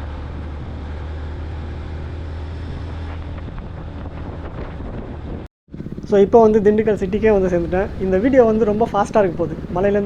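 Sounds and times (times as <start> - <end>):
motorcycle engine drone: 0.0 - 10.0
road noise: 0.0 - 10.0
wind rushing over microphone: 2.5 - 10.0.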